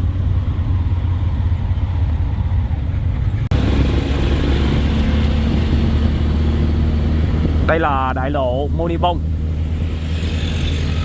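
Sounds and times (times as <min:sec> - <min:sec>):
traffic noise: 0:00.0 - 0:11.0
tuk-tuk engine rumble: 0:00.0 - 0:11.0.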